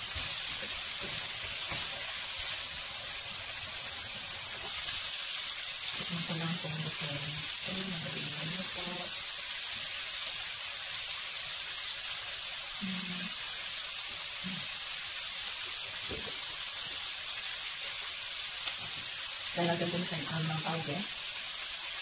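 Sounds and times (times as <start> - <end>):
beans sizzling in oil: 0.0 - 22.0.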